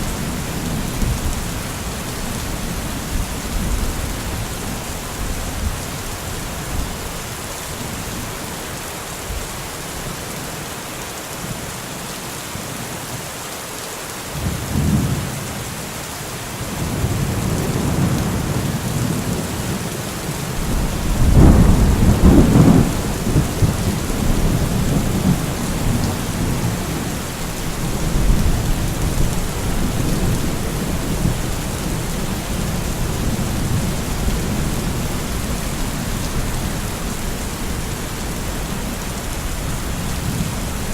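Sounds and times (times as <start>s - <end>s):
steady rain falling: 0.0s - 40.9s
thunder rumbling: 20.5s - 40.9s.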